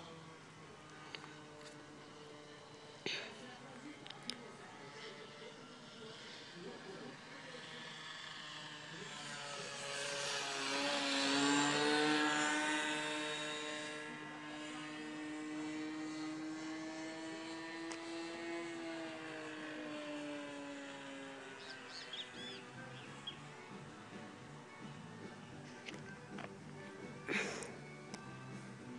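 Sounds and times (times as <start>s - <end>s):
model airplane engine flying past: 0.0s - 28.9s.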